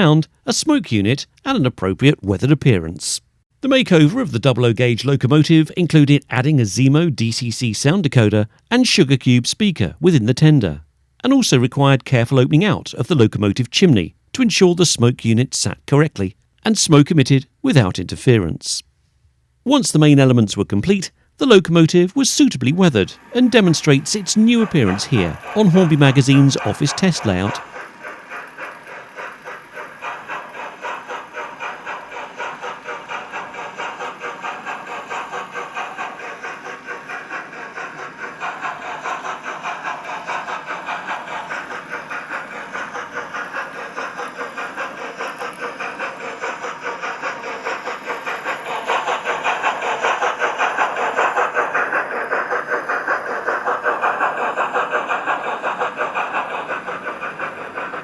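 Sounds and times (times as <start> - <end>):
steam locomotive exhaust chuffs: 0.0 - 58.0.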